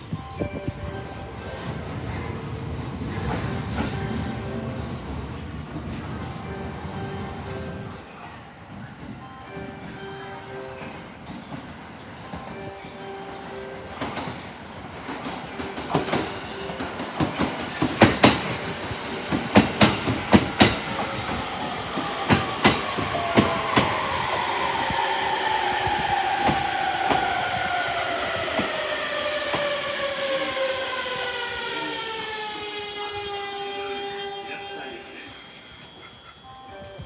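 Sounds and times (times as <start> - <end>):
wheels clacking over rail joints: 14.0 - 24.8.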